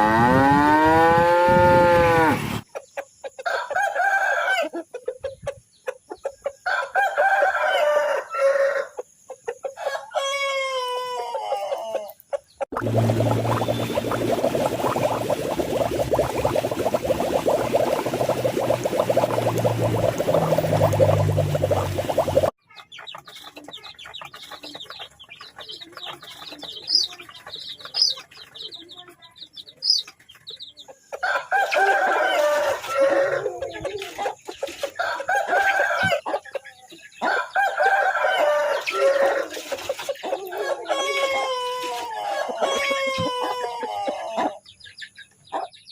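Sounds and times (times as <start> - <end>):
rooster crowing: 3.5 - 4.7, 6.7 - 9.0, 31.2 - 33.6, 37.2 - 39.5
chickens chirping: 11.2 - 45.9.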